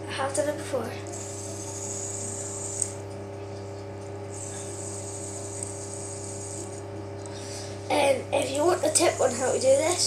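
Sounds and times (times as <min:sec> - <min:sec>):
fidget spinner whirring: 0:00.3 - 0:03.1, 0:04.2 - 0:10.0.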